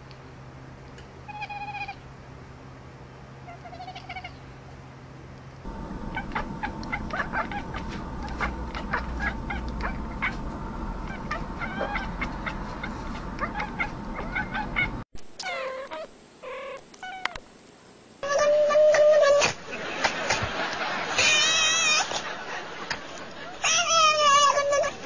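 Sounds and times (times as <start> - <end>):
low background rumble: 0.0 - 15.1
cats meowing: 1.2 - 2.0, 3.4 - 4.4, 11.0 - 12.6, 13.4 - 17.4, 21.2 - 22.1, 23.6 - 25.0.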